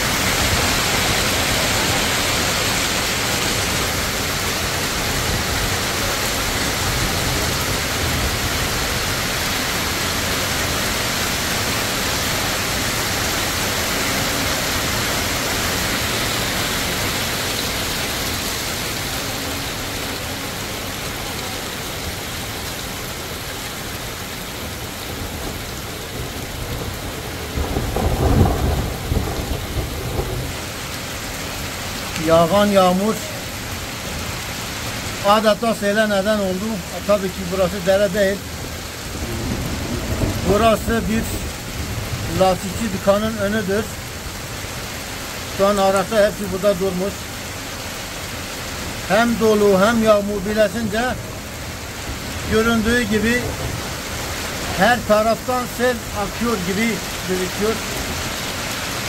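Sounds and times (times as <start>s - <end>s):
heavy rain and hail: 0.0s - 59.0s.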